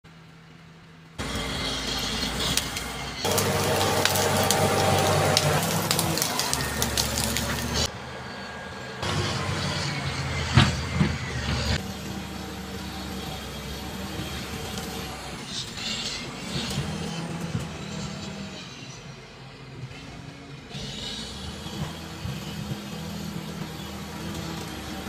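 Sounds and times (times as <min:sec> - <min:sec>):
bulldozer engine hum: 0:00.2 - 0:25.0
sharp metal cracks and clanks: 0:01.2 - 0:07.9.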